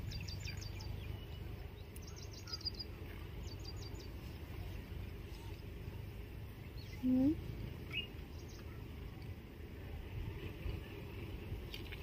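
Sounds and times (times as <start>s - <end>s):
low outdoor rumble: 0.0s - 12.0s
small bird chirping: 6.8s - 8.8s.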